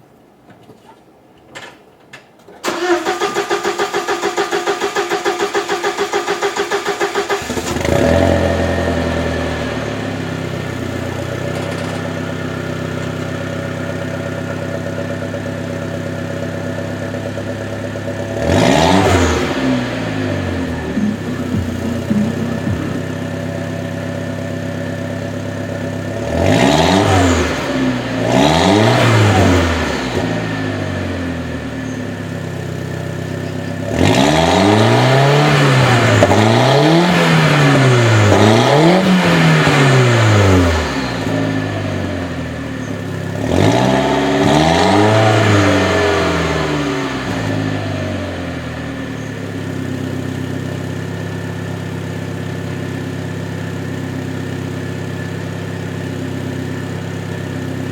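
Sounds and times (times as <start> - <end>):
car engine revving: 2.7 - 13.0, 17.6 - 49.8.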